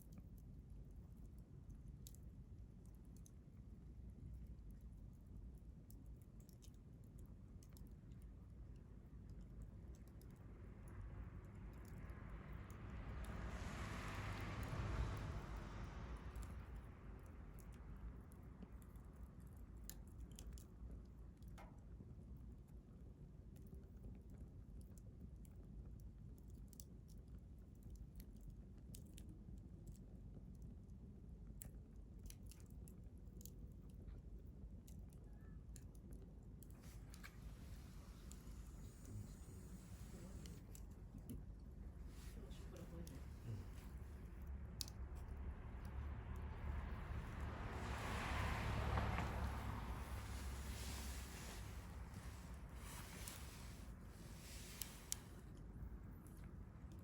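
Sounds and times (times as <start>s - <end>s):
low steady rumble: 0.0s - 57.0s
wood fire crackling: 6.0s - 22.4s, 35.1s - 57.0s
soft hiss: 36.7s - 57.0s
wood fire crackling and popping: 47.2s - 55.6s.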